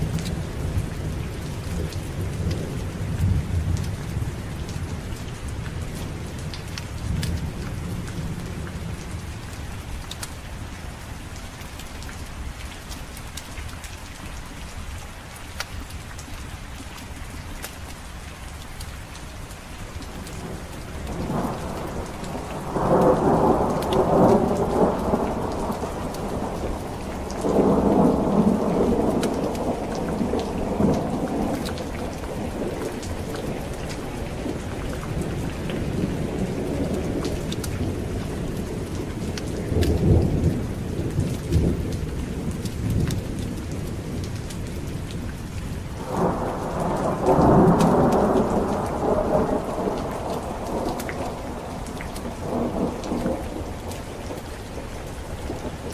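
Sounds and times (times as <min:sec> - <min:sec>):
heavy rain: 0:00.0 - 0:55.9
thunder rolls: 0:20.4 - 0:38.2, 0:46.0 - 0:55.9.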